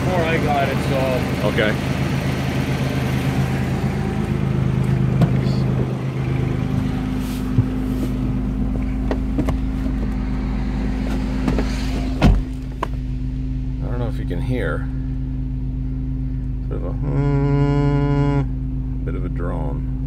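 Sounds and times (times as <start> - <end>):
car engine idling: 0.0 - 20.0
car door opening: 4.7 - 13.0
loud clunk: 11.1 - 13.0.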